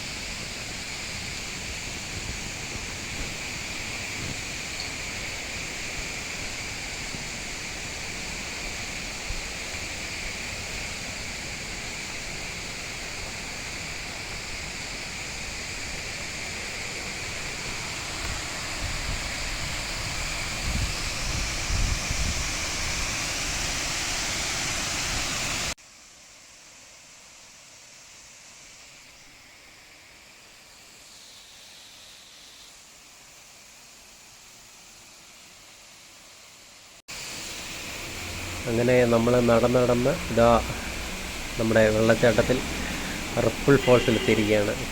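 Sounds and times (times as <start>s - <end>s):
waterfall rushing: 0.0s - 25.8s, 37.1s - 44.9s.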